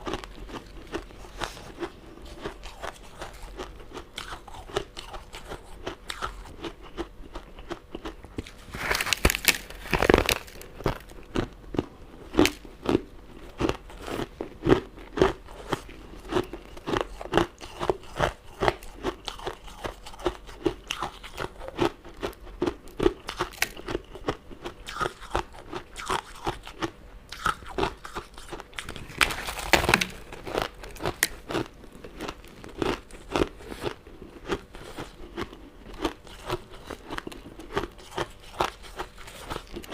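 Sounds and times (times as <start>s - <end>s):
loud crunching bites: 2.6s - 13.0s, 23.2s - 39.9s.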